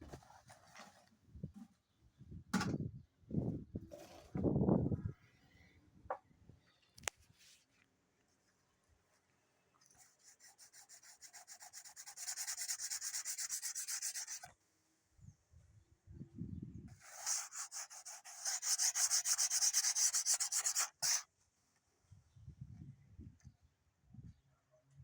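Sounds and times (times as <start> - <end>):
sandpaper sanding wood: 10.2 - 14.5, 17.0 - 21.3.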